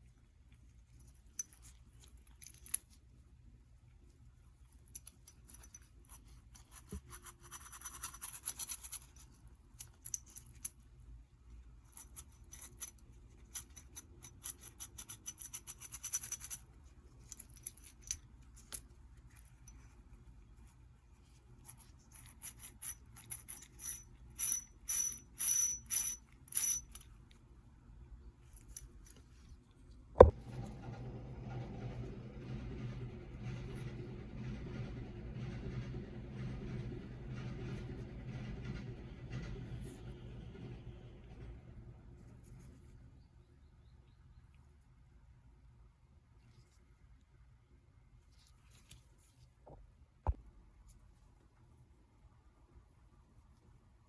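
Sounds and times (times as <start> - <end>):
metal parts clinking and scraping: 1.1 - 3.0, 21.6 - 27.3, 28.4 - 29.2.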